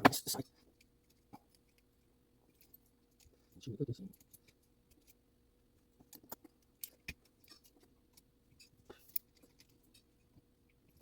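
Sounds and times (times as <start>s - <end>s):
small metal parts clicking: 2.5s - 5.2s, 6.0s - 10.3s.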